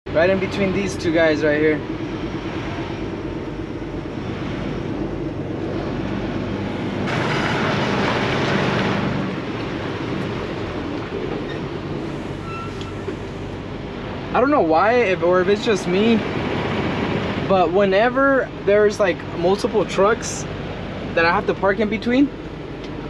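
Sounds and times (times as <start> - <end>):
truck diesel engine running: 0.1 - 23.0
rushing hiss: 12.0 - 13.5.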